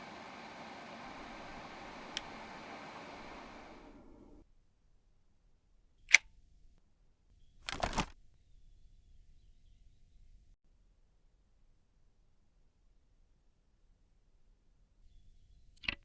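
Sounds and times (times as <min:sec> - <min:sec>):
steady hiss: 0:00.0 - 0:04.4
plastic clicks: 0:07.7 - 0:08.2.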